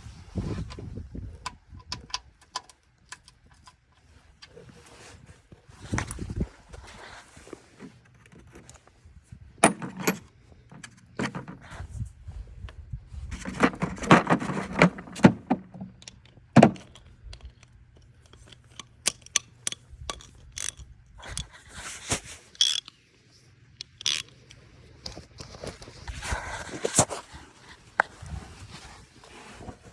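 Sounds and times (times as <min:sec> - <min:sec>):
metal scraping and rattling: 0:09.6 - 0:12.0, 0:13.2 - 0:16.0.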